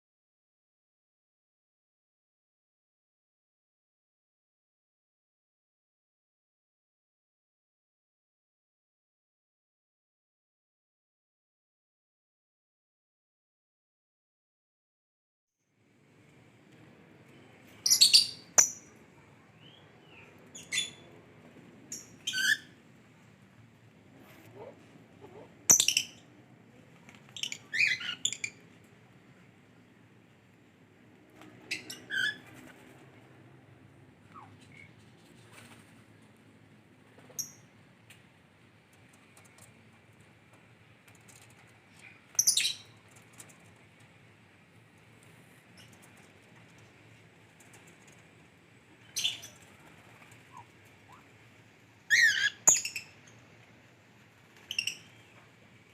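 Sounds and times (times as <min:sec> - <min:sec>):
lovebird chirping: 0:17.8 - 0:19.0, 0:25.3 - 0:26.3, 0:27.4 - 0:28.6, 0:42.3 - 0:43.0, 0:49.0 - 0:49.9, 0:52.1 - 0:53.2, 0:54.6 - 0:55.3
lovebird shrill chirps: 0:27.4 - 0:28.6, 0:52.1 - 0:53.1.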